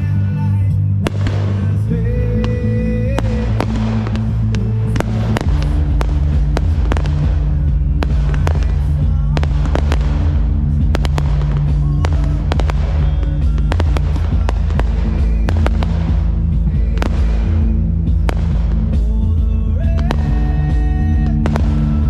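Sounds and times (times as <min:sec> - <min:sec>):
fireworks bangs and crackles: 0:00.0 - 0:22.0
loud music with heavy bass: 0:00.0 - 0:22.0.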